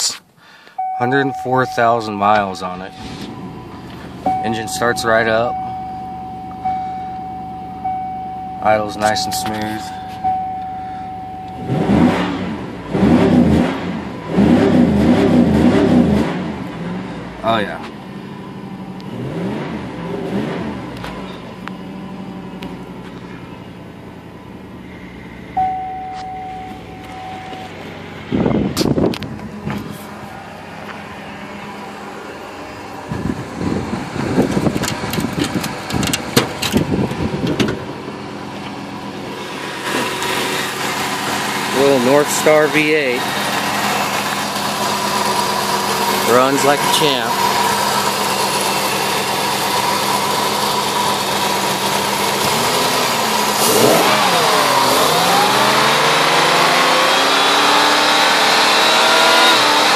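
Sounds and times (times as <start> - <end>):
car engine revving: 0.8 - 59.9
irregular thuds and clicks: 34.5 - 37.8.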